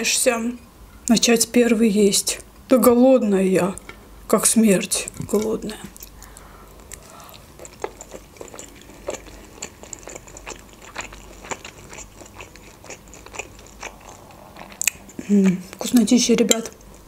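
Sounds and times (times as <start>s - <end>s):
chewing mouth clicks: 6.0s - 17.0s.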